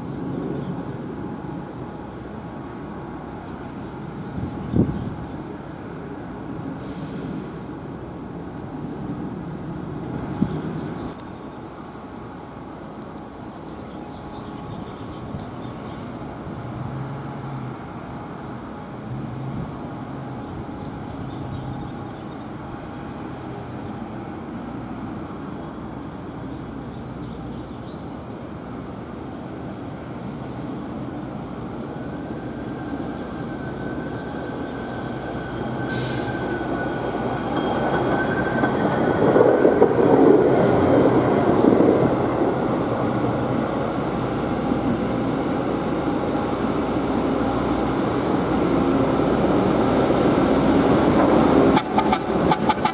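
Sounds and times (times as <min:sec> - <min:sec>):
rail equipment rumbling on track: 0:00.0 - 0:52.9
wheel squeal: 0:50.8 - 0:52.9
sharp clicks: 0:51.8 - 0:52.9.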